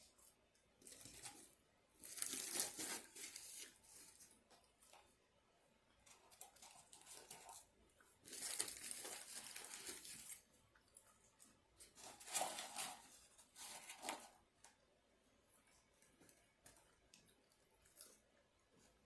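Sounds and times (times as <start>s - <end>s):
paper crinkling and tearing: 0.8s - 4.4s, 8.2s - 10.5s, 11.9s - 14.3s.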